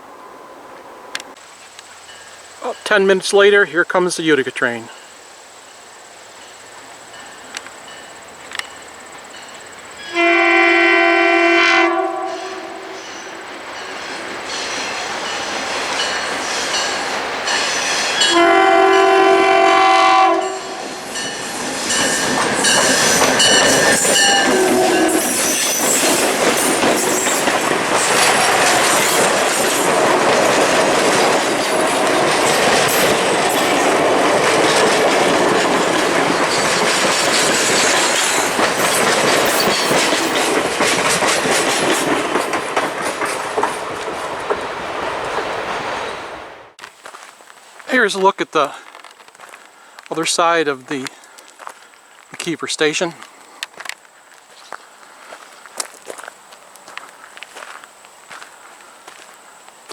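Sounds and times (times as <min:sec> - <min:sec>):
wheels clacking over rail joints: 0:06.4 - 0:10.4, 0:12.2 - 0:19.1, 0:20.7 - 0:46.1
locomotive horn blasts: 0:10.0 - 0:13.5, 0:18.2 - 0:21.0, 0:24.2 - 0:25.3.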